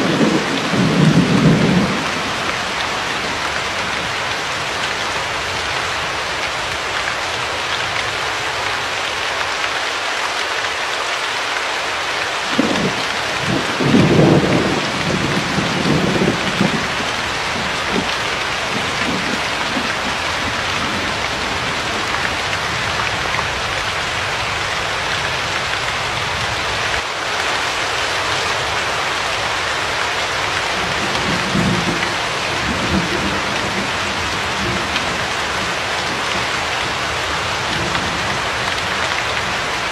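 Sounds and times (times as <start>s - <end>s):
thunder rumbling: 0.0s - 4.7s, 12.5s - 26.6s, 30.4s - 39.9s
heavy rain: 0.0s - 39.9s.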